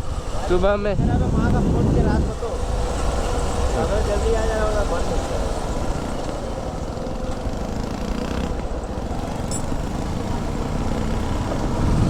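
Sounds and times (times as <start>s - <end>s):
wind rumble on microphone: 0.0s - 12.0s
motorcycle engine running: 5.7s - 12.0s.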